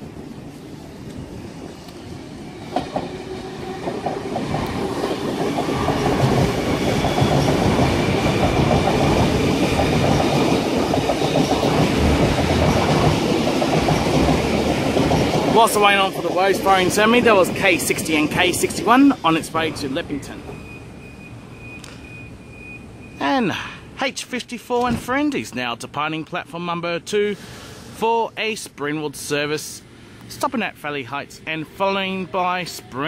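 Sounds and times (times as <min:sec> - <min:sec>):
electric train passing at speed: 0:00.0 - 0:23.2, 0:26.5 - 0:33.0.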